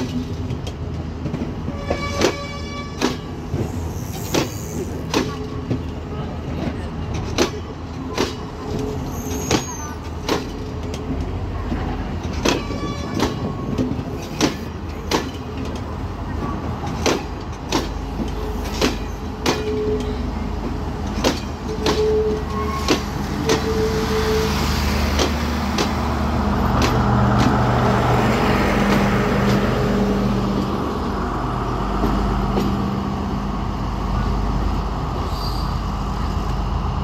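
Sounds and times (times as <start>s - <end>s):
train wheels clicking over rail joints: 0.0s - 30.9s
wheel squeals: 8.2s - 10.2s.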